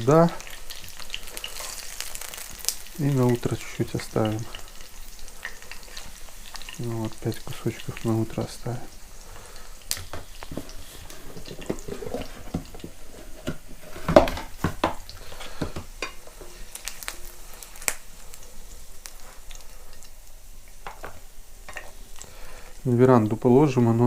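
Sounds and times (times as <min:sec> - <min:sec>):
meat sizzling in a pan: 0:00.0 - 0:24.0
utensil knocking and scraping pan: 0:10.1 - 0:16.6.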